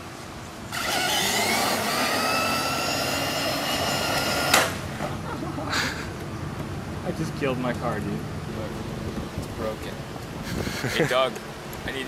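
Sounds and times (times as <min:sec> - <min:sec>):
toy car motor whining: 0:00.7 - 0:04.8
toy car crashing into concrete: 0:00.8 - 0:04.8.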